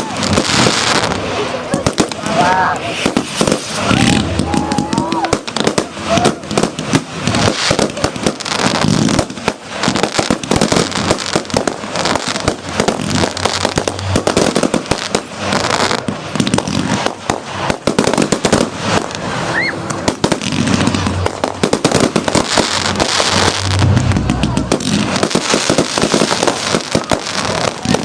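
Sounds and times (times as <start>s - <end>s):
fireworks bangs and crackling: 0.0s - 28.0s
rocket whistle rising: 3.7s - 5.4s, 19.4s - 20.0s.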